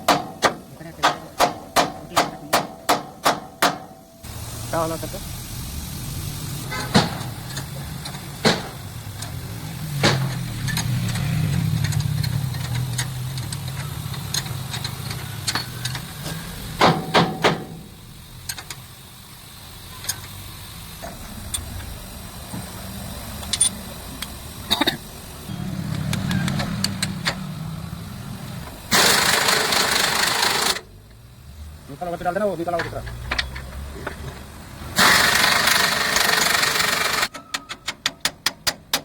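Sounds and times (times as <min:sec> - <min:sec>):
sharp metal knocks: 0:00.0 - 0:04.2, 0:06.8 - 0:07.7, 0:08.4 - 0:08.8, 0:10.0 - 0:11.0, 0:16.8 - 0:17.9, 0:37.3 - 0:39.0
truck engine idling: 0:00.0 - 0:31.3.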